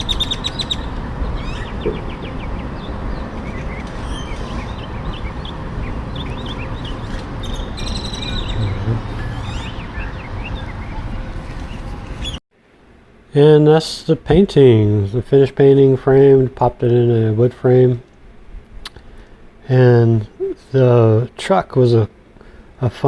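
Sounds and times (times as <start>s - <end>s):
low outdoor rush: 0.0s - 12.4s
small birds chirping: 0.0s - 12.4s.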